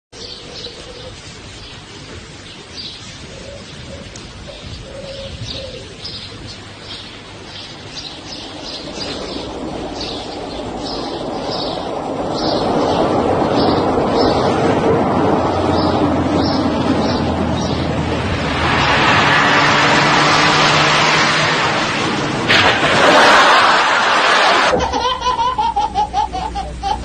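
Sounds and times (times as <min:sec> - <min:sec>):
birds chirping: 0:00.2 - 0:14.8, 0:15.4 - 0:21.3
broad rushing noise: 0:00.2 - 0:27.0.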